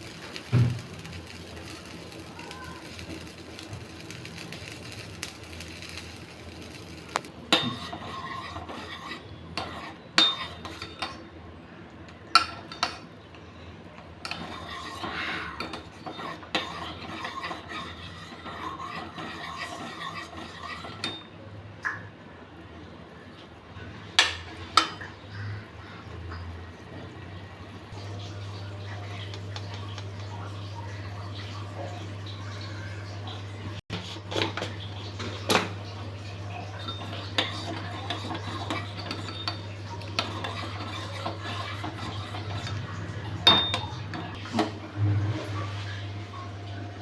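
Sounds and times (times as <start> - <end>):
spoon scraping in a pot: 0.0 - 11.3, 14.2 - 21.3, 33.9 - 44.9
spoon clinking against pot: 7.5 - 11.2, 36.8 - 42.8, 43.5 - 44.0.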